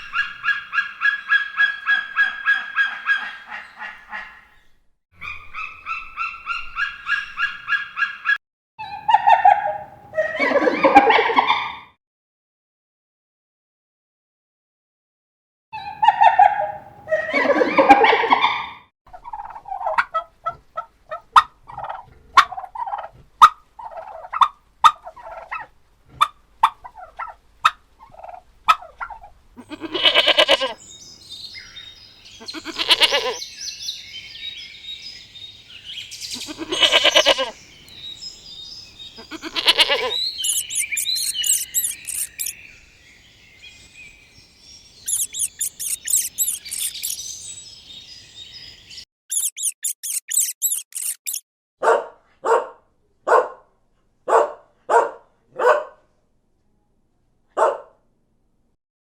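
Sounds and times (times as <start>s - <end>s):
loud poultry calls: 0.0s - 4.5s, 28.2s - 30.8s, 32.3s - 33.4s, 36.3s - 37.6s, 39.1s - 42.5s, 45.1s - 47.2s
poultry clucking: 0.3s - 4.5s, 16.0s - 30.8s, 32.4s - 33.4s, 36.4s - 37.6s, 39.2s - 42.5s, 45.1s - 47.2s
high-pitched chirping: 39.4s - 42.6s, 45.1s - 47.3s, 49.3s - 51.4s.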